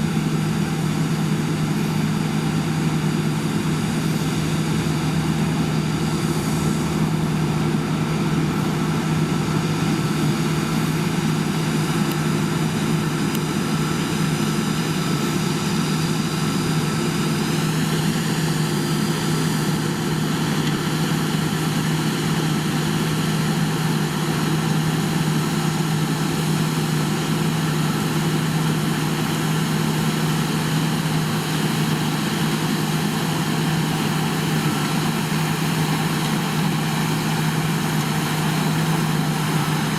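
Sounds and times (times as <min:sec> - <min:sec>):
heavy farm machinery engine: 0:00.0 - 0:39.9.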